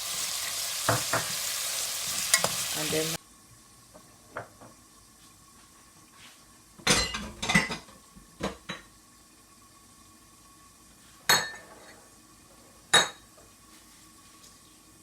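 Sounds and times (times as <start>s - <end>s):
utensils clanking against a pot: 2.1s - 2.7s.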